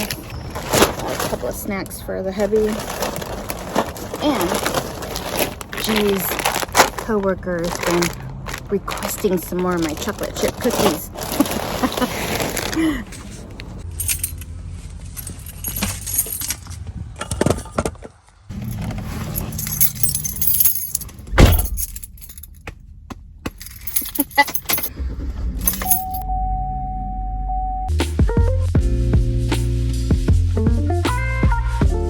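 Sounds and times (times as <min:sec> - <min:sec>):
rattling handling noises: 0:02.4 - 0:22.8, 0:23.4 - 0:24.9, 0:25.6 - 0:26.2
keys jangling: 0:13.8 - 0:14.5, 0:15.1 - 0:16.6, 0:18.6 - 0:22.6, 0:23.6 - 0:24.9, 0:25.6 - 0:26.2
heavy thump: 0:20.9 - 0:23.8
steady single tone: 0:26.2 - 0:27.9.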